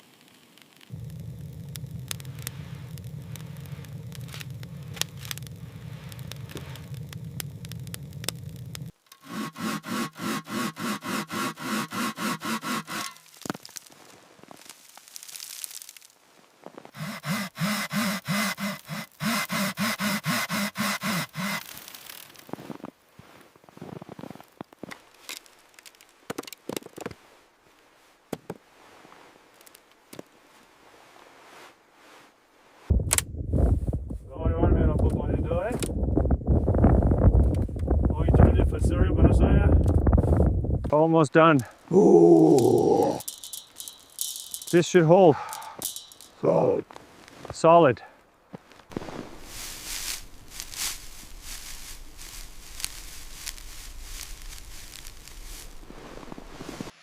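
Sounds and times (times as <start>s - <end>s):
sharp crackles and clicks: 0.0s - 27.1s, 29.5s - 30.3s, 32.8s - 47.6s, 48.6s - 57.0s
faint wind: 0.0s - 57.0s
steady low rumble: 0.9s - 8.9s, 32.9s - 40.9s, 49.3s - 56.9s
stones knocking together: 13.2s - 13.9s.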